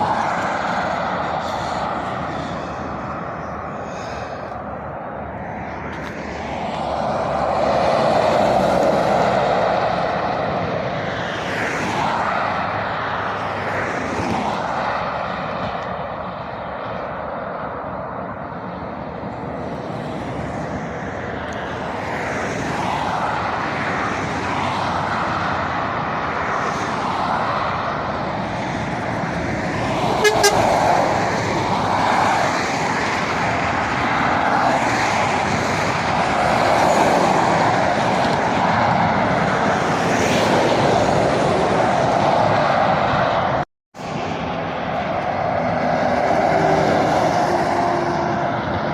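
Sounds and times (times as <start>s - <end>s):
traffic passing at speed: 0.0s - 48.9s
short car horn toot: 30.2s - 30.7s.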